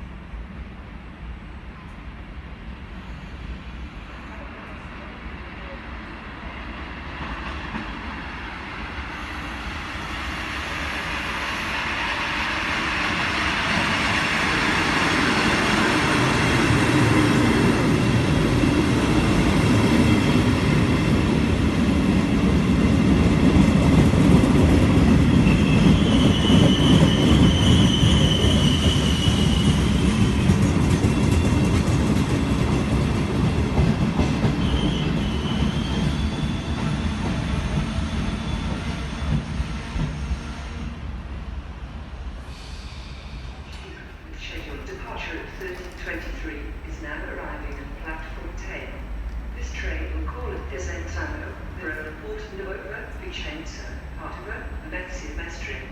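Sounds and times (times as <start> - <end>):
train rumble: 0.0 - 55.9
high wheel squeal: 25.4 - 30.1.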